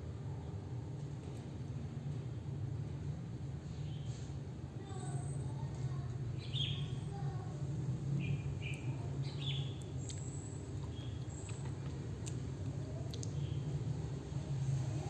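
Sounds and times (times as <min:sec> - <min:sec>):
high bird chirps: 0:06.4 - 0:07.0.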